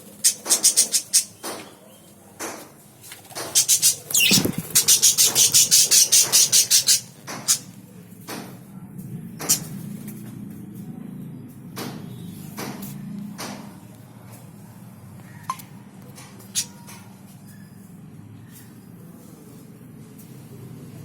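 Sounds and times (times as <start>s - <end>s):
budgerigars chirping: 0.2s - 1.5s, 3.5s - 7.7s.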